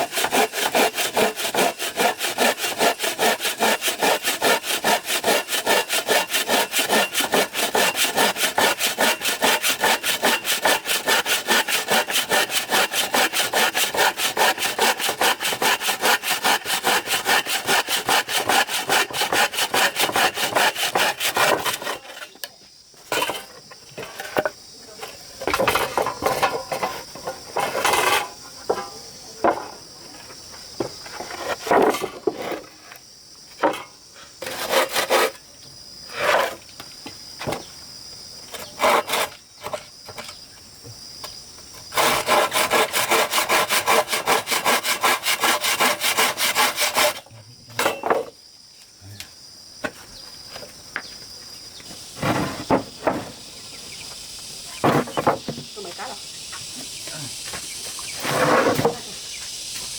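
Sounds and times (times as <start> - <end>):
hand saw cutting wood: 0.0 - 22.4, 27.6 - 28.4, 34.4 - 35.4, 36.1 - 36.6, 38.5 - 39.8, 41.9 - 48.0, 58.2 - 59.0
scraping strokes on wood: 0.0 - 22.4, 24.0 - 28.9, 33.6 - 35.4, 36.1 - 36.7, 38.5 - 39.8, 41.9 - 48.0, 57.5 - 59.1
high insect drone: 0.0 - 59.9.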